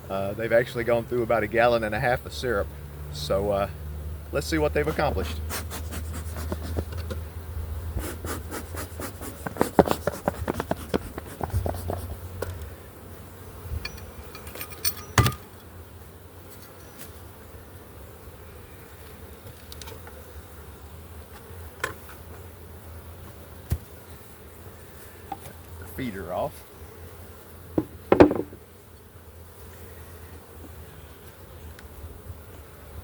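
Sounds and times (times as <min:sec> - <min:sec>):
honey bees buzzing: 0:00.0 - 0:33.0
hive equipment knocking and scraping: 0:06.2 - 0:07.2, 0:08.9 - 0:12.7, 0:27.8 - 0:28.6.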